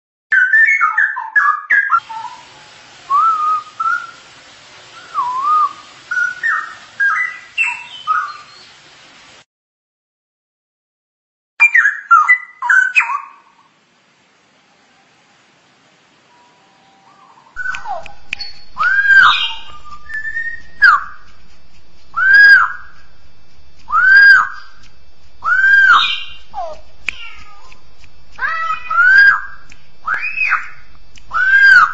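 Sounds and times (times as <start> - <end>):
bird singing whistled phrases: 0.3 - 2.4, 3.1 - 4.2, 5.0 - 8.7, 11.6 - 13.4, 17.1 - 21.3, 22.1 - 23.0, 23.9 - 24.8, 25.4 - 27.7, 28.4 - 31.9.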